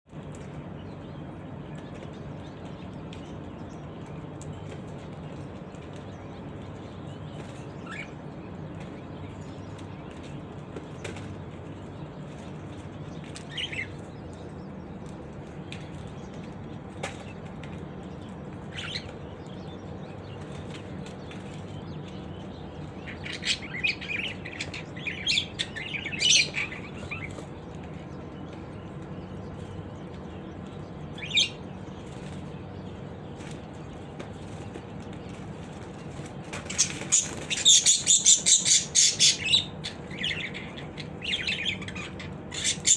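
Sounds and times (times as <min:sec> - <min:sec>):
birds chirping: 0:00.1 - 0:42.9
steady low hum: 0:00.1 - 0:42.9
wings fluttering: 0:20.1 - 0:42.9.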